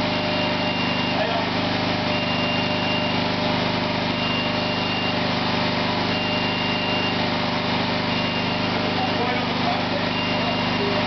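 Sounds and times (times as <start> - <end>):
small engine running: 0.0 - 11.0
faint high beep: 4.2 - 5.2, 6.1 - 7.2, 8.1 - 8.7, 10.1 - 11.0.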